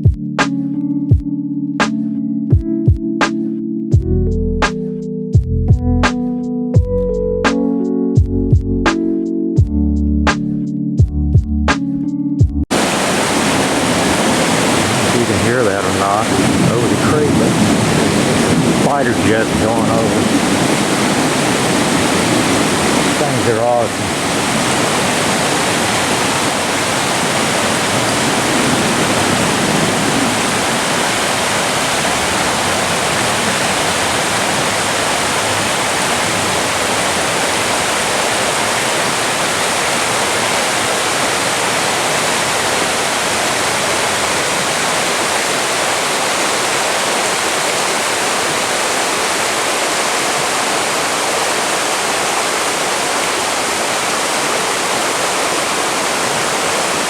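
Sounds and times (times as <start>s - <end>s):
creek water rushing over rocks: 12.7s - 57.0s.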